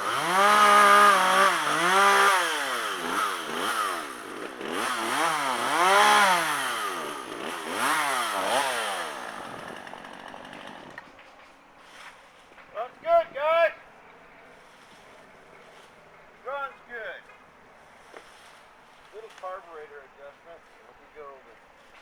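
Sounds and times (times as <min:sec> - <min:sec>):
chainsaw revving: 0:00.0 - 0:11.2.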